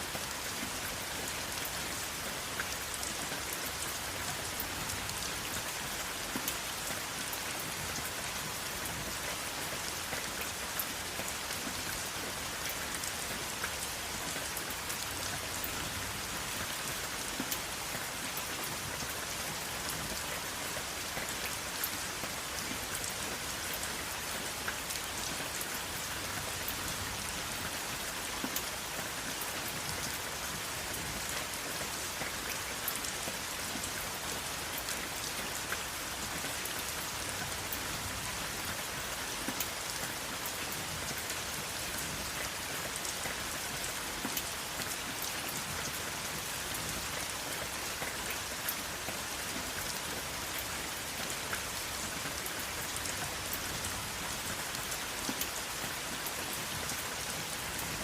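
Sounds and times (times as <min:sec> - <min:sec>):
rain on hard surface: 0:00.0 - 0:58.0.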